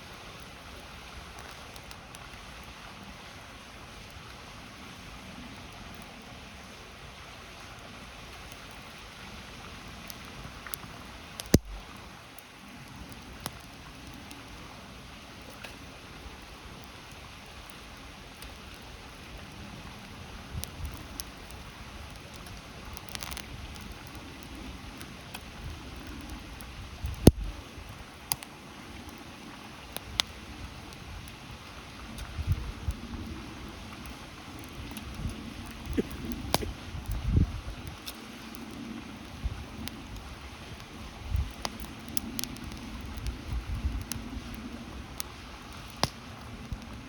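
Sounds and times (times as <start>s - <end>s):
campfire crackling and popping: 0.0s - 47.0s.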